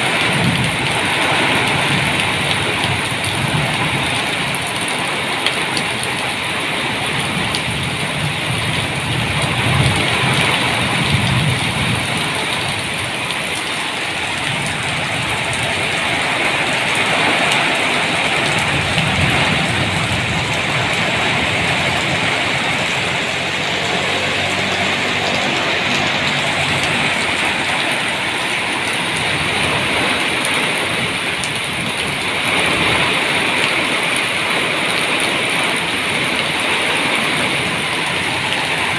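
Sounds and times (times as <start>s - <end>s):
heavy rain falling: 0.0s - 38.9s
low rumbles: 8.3s - 33.5s.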